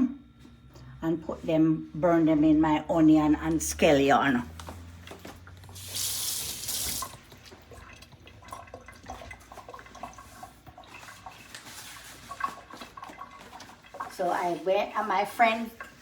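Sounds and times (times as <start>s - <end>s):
kitchen tap running: 5.6s - 16.0s.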